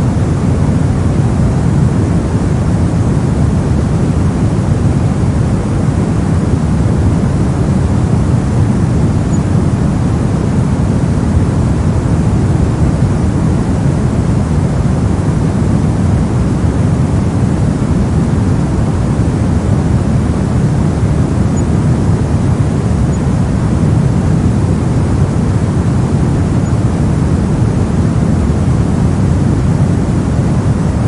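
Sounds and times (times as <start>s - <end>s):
deep white noise hiss: 0.0s - 31.0s.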